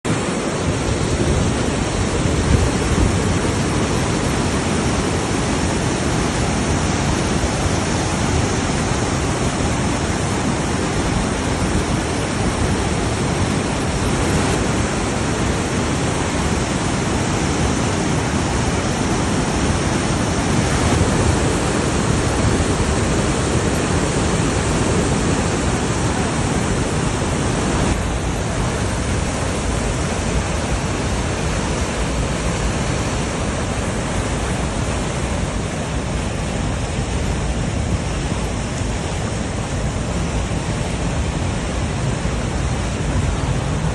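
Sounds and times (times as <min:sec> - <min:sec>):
water gushing through spillway: 0:00.0 - 0:43.9.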